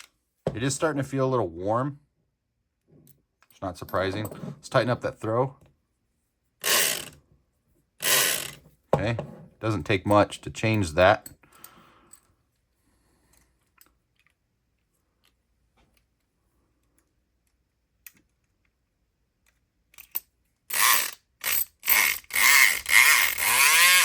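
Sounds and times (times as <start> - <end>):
electric pick gun buzzing: 6.6 - 7.1, 8.0 - 8.6, 20.7 - 24.0.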